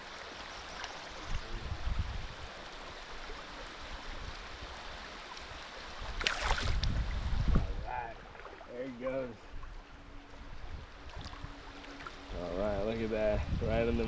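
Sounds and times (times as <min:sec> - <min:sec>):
river water rushing: 0:00.0 - 0:06.8
fish splashing into water: 0:06.2 - 0:06.8.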